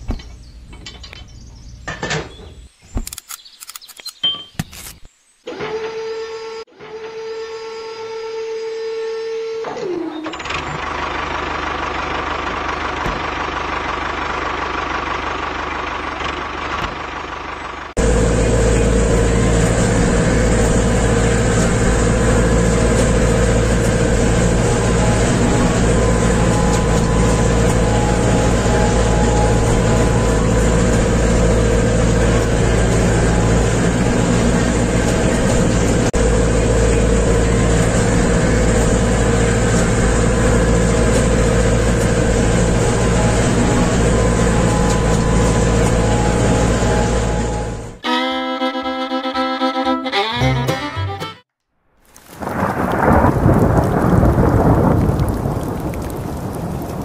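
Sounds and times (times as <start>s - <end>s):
motor-driven machine running: 9.4s - 48.0s.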